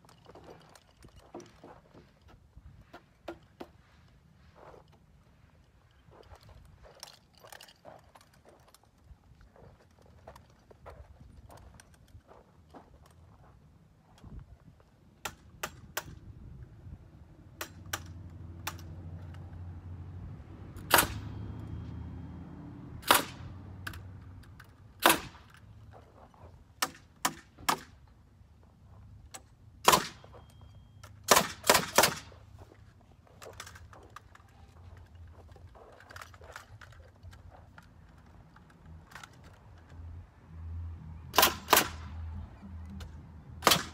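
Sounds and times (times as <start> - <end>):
nail gun shots: 20.8 - 21.3, 23.0 - 23.5, 25.0 - 25.5, 29.8 - 30.3, 31.2 - 32.4, 41.3 - 42.2, 43.6 - 43.9
low hum: 32.5 - 43.9.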